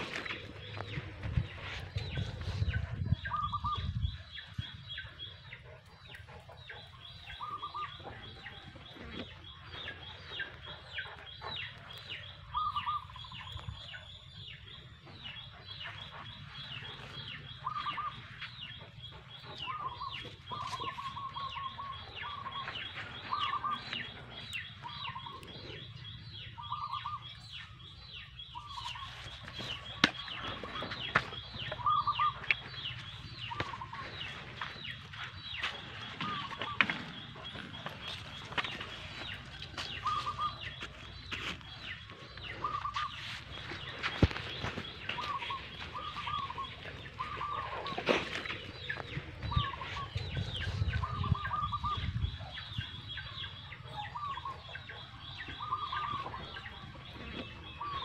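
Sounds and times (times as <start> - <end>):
short clucking bird calls: 15.3 - 58.0.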